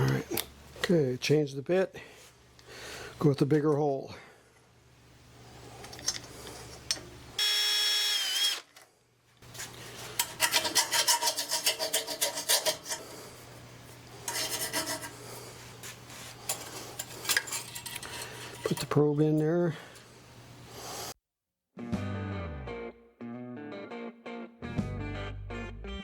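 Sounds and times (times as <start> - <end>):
drill bit rasping into metal pipe: 7.4 - 8.6
electric drill whining: 7.4 - 8.8.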